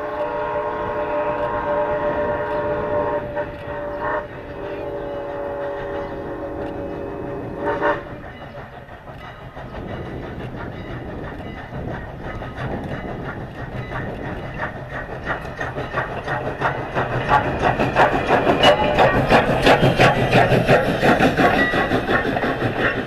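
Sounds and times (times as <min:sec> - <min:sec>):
steam locomotive whistle: 0:00.0 - 0:08.2
train wheels clicking: 0:00.0 - 0:23.0.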